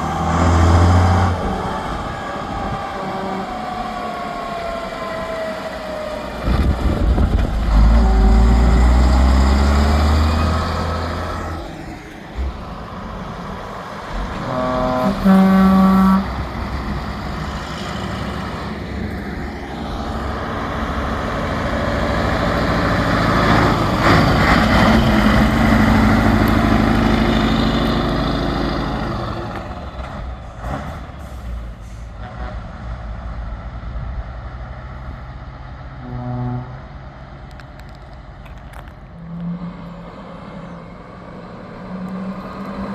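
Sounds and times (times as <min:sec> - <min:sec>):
heavy trucks driving past: 0:00.0 - 0:42.9
truck horn blast: 0:07.7 - 0:09.3, 0:14.4 - 0:17.0, 0:36.0 - 0:37.0
air brakes hissing: 0:30.9 - 0:32.2.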